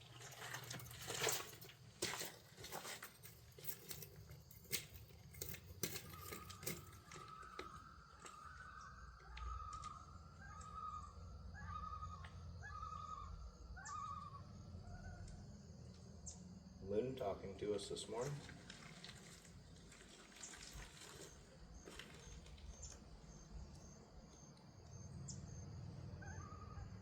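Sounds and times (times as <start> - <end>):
bird trilling: 6.2 - 15.2.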